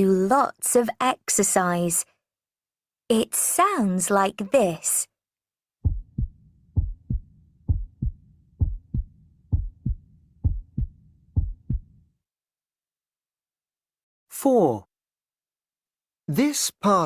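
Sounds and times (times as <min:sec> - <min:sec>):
heartbeat thumps: 0:05.8 - 0:12.0.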